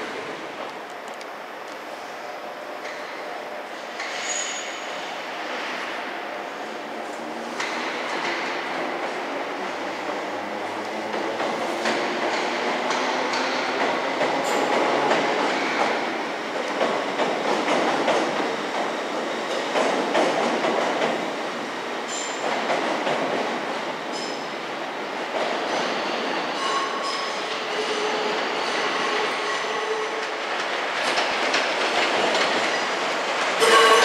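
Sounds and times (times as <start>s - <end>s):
electric train rumbling: 0.0s - 34.0s.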